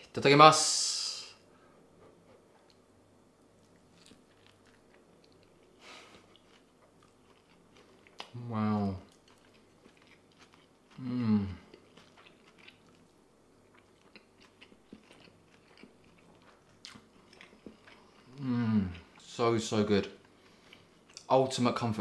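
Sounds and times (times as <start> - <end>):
man chewing food: 1.9 - 19.3, 20.1 - 21.3
man humming with enjoyment: 11.0 - 11.6.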